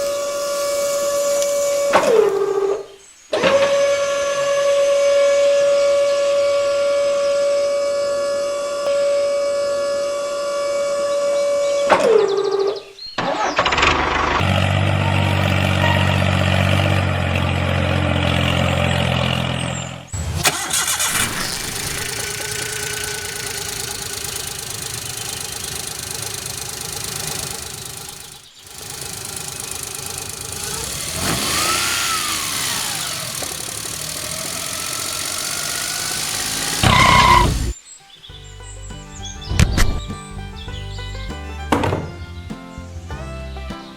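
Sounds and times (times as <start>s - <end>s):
engine starting and idling: 13.2s - 37.8s
engine running noisily: 13.5s - 37.8s.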